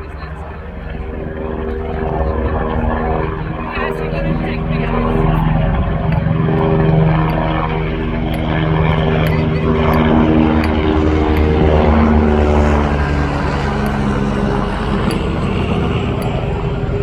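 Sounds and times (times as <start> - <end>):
low-flying aircraft engine droning: 0.0 - 17.0.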